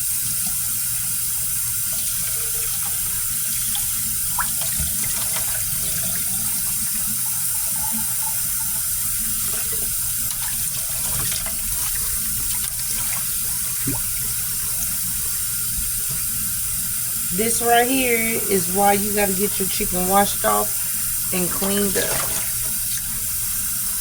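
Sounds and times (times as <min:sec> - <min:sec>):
tap running into sink: 0:01.9 - 0:06.9, 0:21.2 - 0:23.4
knocks and splashes from handling: 0:21.5 - 0:23.0.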